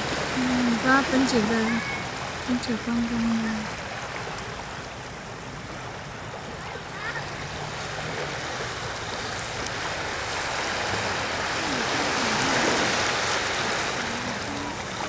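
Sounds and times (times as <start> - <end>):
waves washing on sandy beach: 0.0 - 15.0.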